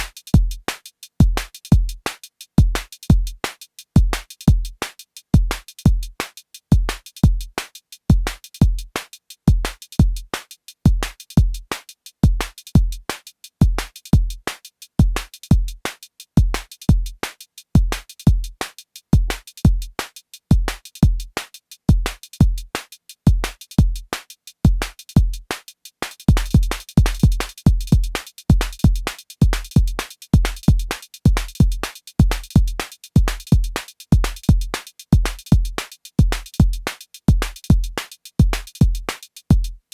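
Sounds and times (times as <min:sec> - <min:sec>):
ticking hi-hats: 0:00.0 - 0:39.9
deep kick drums: 0:26.3 - 0:29.6.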